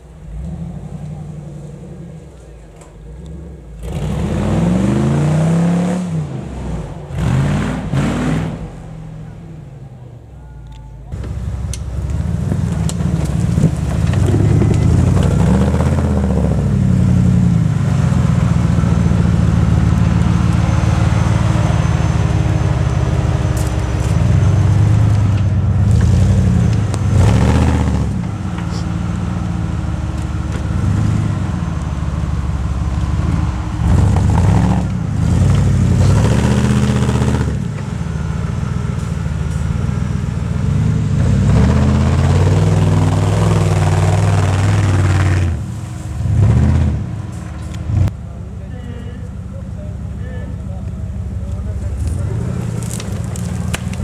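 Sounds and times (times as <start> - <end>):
engine revving hard: 3.2 - 9.3, 11.1 - 48.1.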